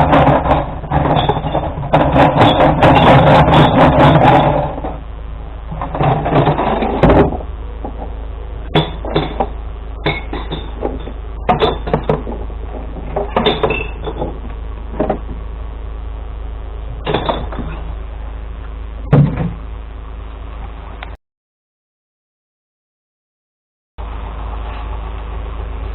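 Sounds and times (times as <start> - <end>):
knocks and clunks: 0.0 - 15.5, 16.9 - 18.0, 19.0 - 19.7
truck engine idling: 0.0 - 21.2, 24.0 - 25.9.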